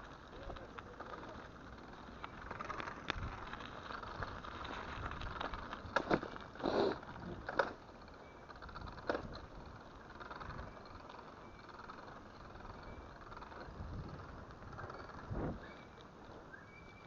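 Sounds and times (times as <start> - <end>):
bike tyre noise on snow: 0.0 - 17.0
bike knocks and rattles: 4.6 - 6.5, 7.2 - 10.9.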